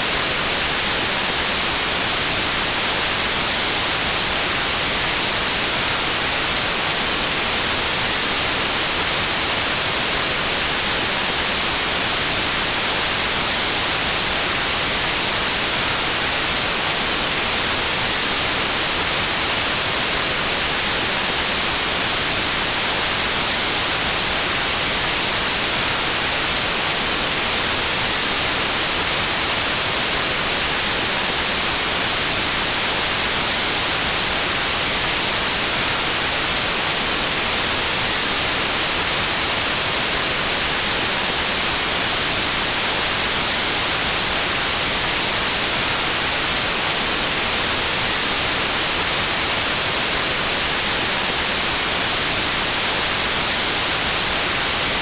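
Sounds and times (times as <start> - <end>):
white noise hiss: 0.0 - 55.0.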